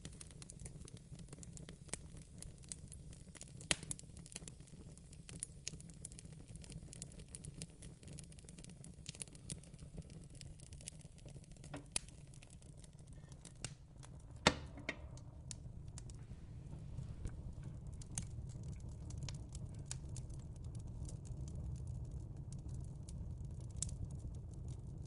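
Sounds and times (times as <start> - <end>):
fireplace fire crackling: 0.0 - 25.0
low steady rumble: 11.4 - 25.0
sharp pops: 13.6 - 16.3.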